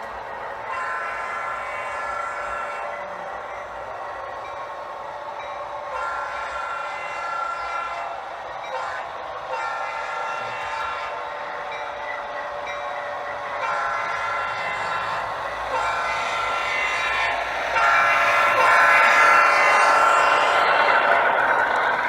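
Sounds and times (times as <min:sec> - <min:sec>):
model locomotive air horn: 0:05.9 - 0:11.2, 0:13.6 - 0:20.4.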